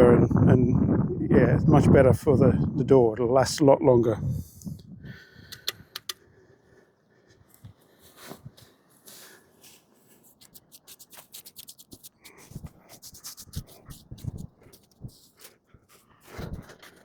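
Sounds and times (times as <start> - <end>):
scratchy paintbrush strokes: 7.2 - 17.0.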